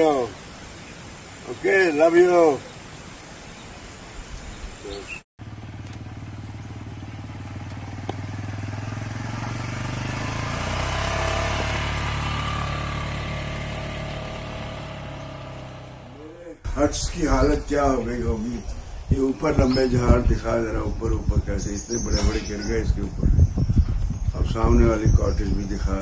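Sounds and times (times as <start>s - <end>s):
vehicle engine running: 5.4s - 26.0s.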